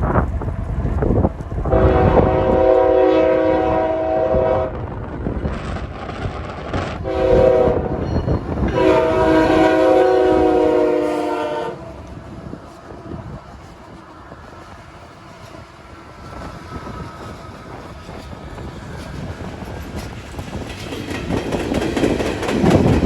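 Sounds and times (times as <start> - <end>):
train rumbling past: 0.0 - 23.0
locomotive air horn blasts: 1.7 - 4.7, 7.0 - 8.0, 8.6 - 11.9.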